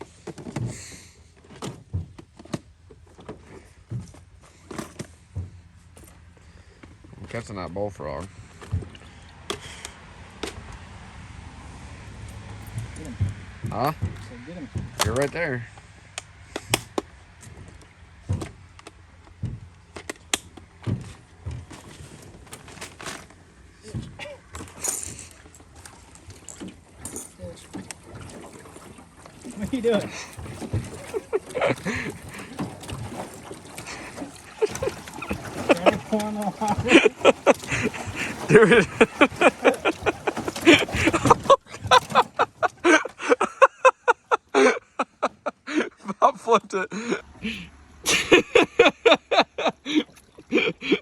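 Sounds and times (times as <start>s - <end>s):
hollow thumps in a small boat: 0.0s - 45.7s
sharp clicks of gear: 16.1s - 17.8s
men laughing: 29.5s - 51.0s.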